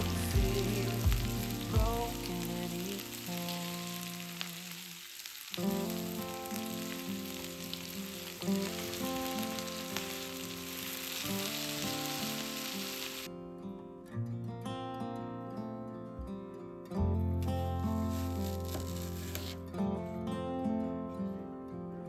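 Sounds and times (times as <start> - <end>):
background music: 0.0 - 4.2
food sizzling in a pan: 0.0 - 13.3, 17.4 - 19.6.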